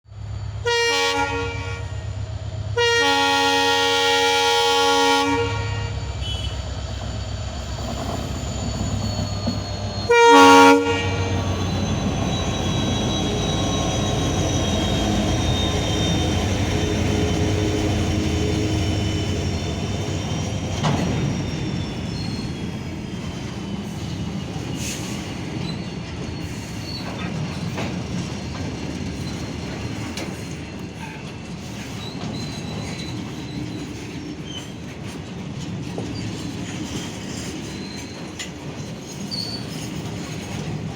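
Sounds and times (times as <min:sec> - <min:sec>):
train rumbling past: 0:00.1 - 0:40.9
train horn blasts: 0:00.6 - 0:02.1, 0:02.8 - 0:06.6, 0:10.0 - 0:11.8, 0:12.8 - 0:19.6
wheel squeal: 0:05.9 - 0:28.5, 0:31.1 - 0:34.8, 0:36.0 - 0:40.9.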